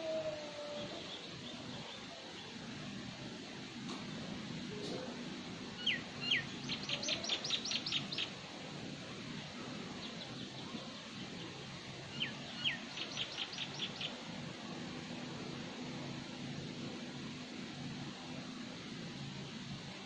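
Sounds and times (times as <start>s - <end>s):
songbird calling: 0.0s - 2.6s, 5.8s - 8.4s, 12.1s - 14.2s.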